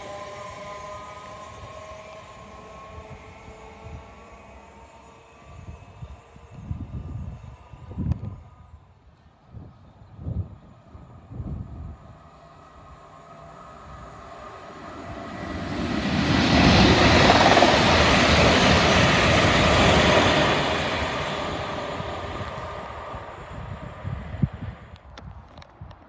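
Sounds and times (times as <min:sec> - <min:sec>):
train wheels on rails: 0:10.8 - 0:25.7.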